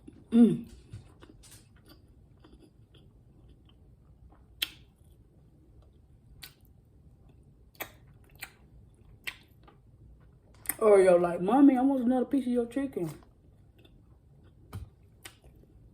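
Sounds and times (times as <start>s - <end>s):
person chewing: 0.0s - 10.8s, 13.1s - 15.9s
wet mouth smacks: 4.6s - 4.9s, 6.4s - 6.7s, 7.7s - 8.6s, 9.2s - 9.5s, 14.7s - 15.6s.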